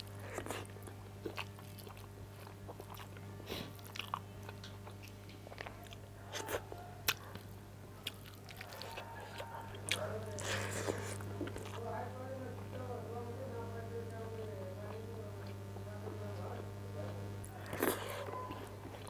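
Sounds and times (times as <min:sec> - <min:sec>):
person chewing and biting: 0:00.0 - 0:11.8, 0:17.4 - 0:19.0
steady low hum: 0:00.0 - 0:19.0.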